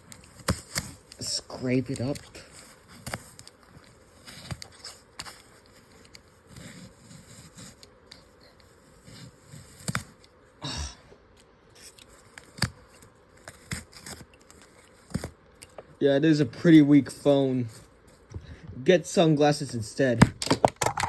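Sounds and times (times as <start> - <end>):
paper scraping: 0.0 - 10.3, 11.8 - 15.3.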